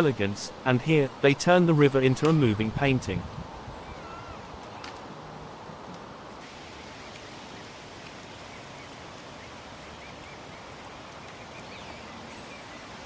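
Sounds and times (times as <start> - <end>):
even outdoor hiss: 0.0 - 13.0
small birds chirping: 3.6 - 5.0, 8.3 - 13.0.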